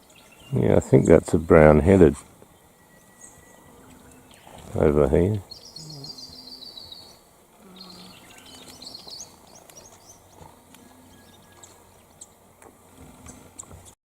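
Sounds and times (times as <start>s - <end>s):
small bird chirping: 5.3s - 12.4s.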